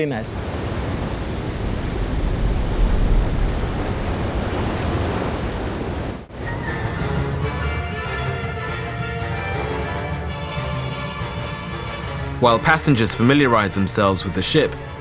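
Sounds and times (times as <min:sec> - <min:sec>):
wind and sea rushing: 0:00.0 - 0:07.4
low rumble: 0:00.5 - 0:06.3
background music: 0:06.3 - 0:15.0.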